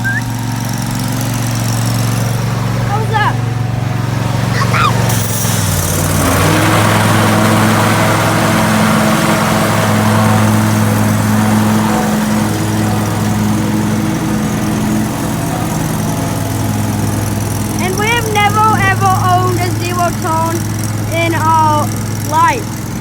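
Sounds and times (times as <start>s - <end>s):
lawn mower engine running: 0.0s - 23.0s
mower blades cutting grass: 0.0s - 23.0s.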